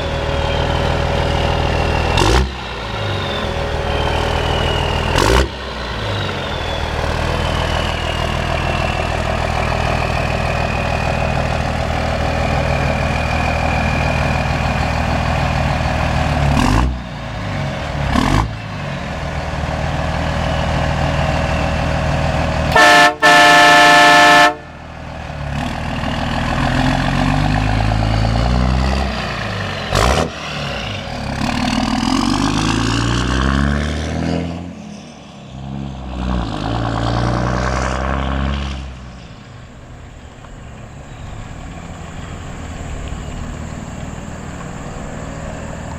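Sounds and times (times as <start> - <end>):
diesel truck engine running: 0.0 - 45.9
multi-tone train horn blast: 22.7 - 24.9.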